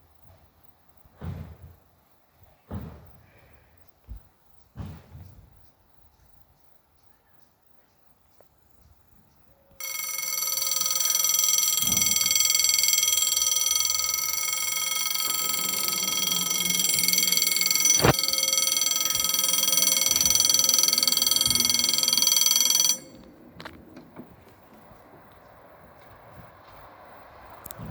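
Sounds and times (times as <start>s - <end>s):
level crossing bell ringing: 9.8s - 23.4s.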